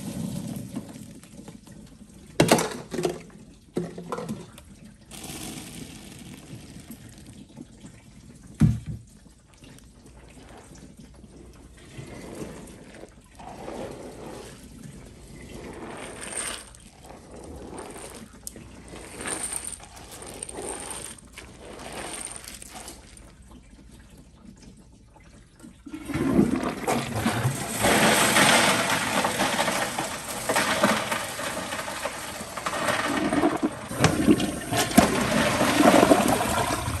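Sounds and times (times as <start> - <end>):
toilet flush rush of water: 2.3 - 8.6, 10.1 - 23.3, 25.6 - 37.0
water trickling and splashing: 6.0 - 19.2, 21.0 - 29.0.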